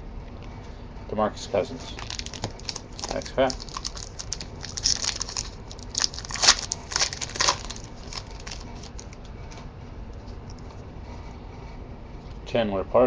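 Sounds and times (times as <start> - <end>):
card wrapper crinkling and tearing: 1.9 - 9.2.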